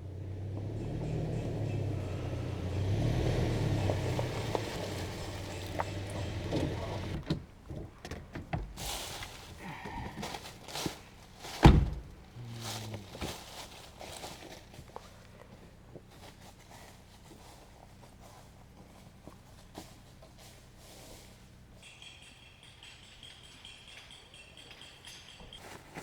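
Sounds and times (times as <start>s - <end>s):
vehicle engine running: 0.0s - 25.8s
loud thump: 11.6s - 12.2s.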